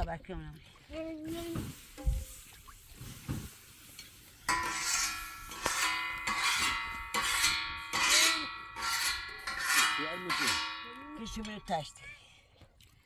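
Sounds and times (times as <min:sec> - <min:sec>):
metal tray being struck: 0:04.5 - 0:11.9.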